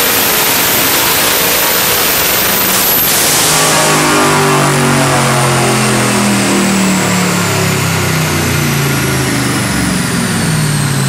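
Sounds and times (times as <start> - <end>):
engine running on dyno: 0.0 - 11.0
thin high whine: 0.0 - 11.0.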